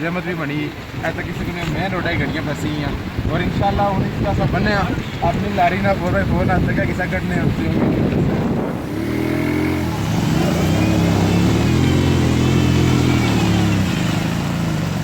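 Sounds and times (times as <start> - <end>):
engine revving hard: 8.5 - 15.0.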